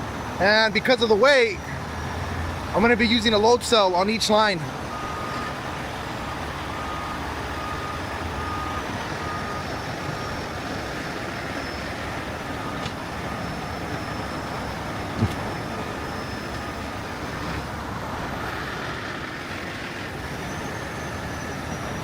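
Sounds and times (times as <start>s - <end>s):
heavy truck road noise: 0.0s - 22.0s
faint reversing beeps: 4.6s - 18.6s, 20.2s - 22.0s
short knock: 15.2s - 15.5s.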